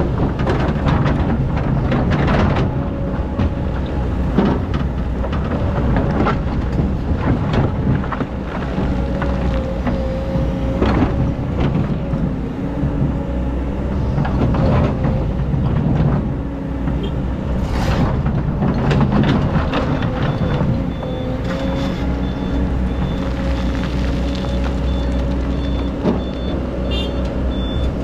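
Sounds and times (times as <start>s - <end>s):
excavator diesel engine under load: 0.0s - 28.0s
bucket scraping and clanking: 17.6s - 20.8s.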